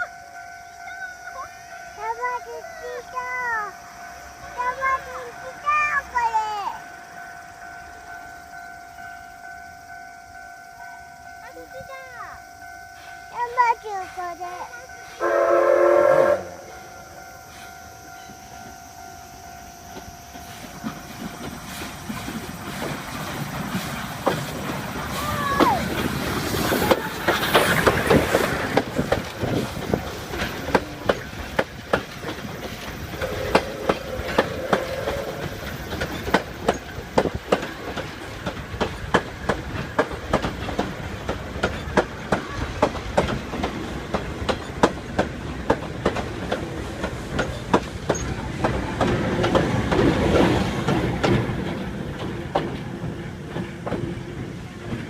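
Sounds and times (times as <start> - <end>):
train whistle blast: 15.0 - 20.2, 33.1 - 35.8
wheels clicking over rail joints: 16.7 - 55.0.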